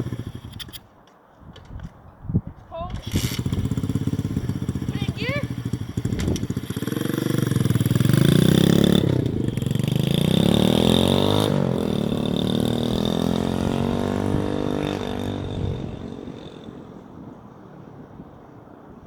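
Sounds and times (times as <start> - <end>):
motorbike engine accelerating: 0.0 - 0.8, 2.9 - 18.3.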